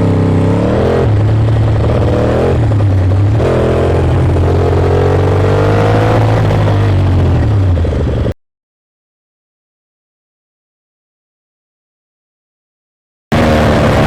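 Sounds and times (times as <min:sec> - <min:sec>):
motorcycle engine accelerating: 0:00.0 - 0:08.4, 0:13.3 - 0:14.0.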